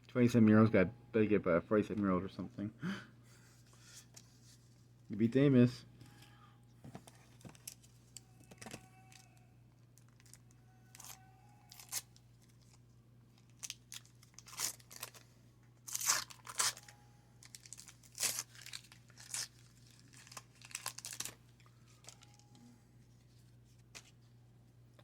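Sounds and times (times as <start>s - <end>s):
wax paper wrapper tearing and crinkling: 10.0s - 12.8s, 13.4s - 22.5s.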